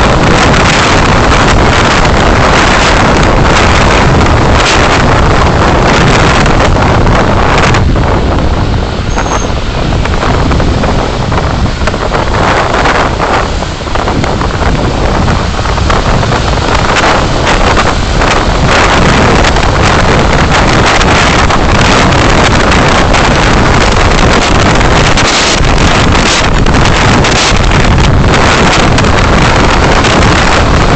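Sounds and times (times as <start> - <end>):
road and engine noise: 0.0 - 30.9
wind buffeting microphone: 0.0 - 30.9.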